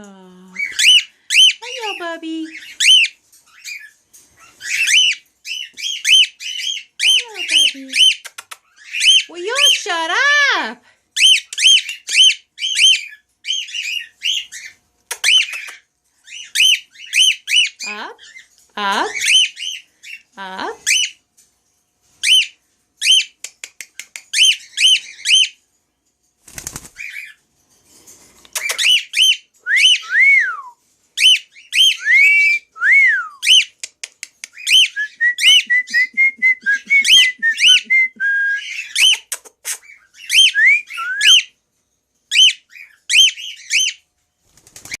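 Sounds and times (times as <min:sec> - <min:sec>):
cockatiel chirping: 0:02.6 - 0:09.3, 0:42.3 - 0:44.0.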